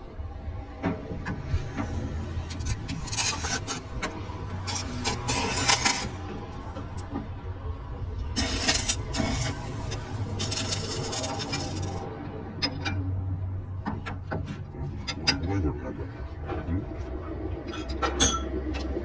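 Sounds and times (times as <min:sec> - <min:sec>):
harsh hissing scraping: 0:08.4 - 0:12.0.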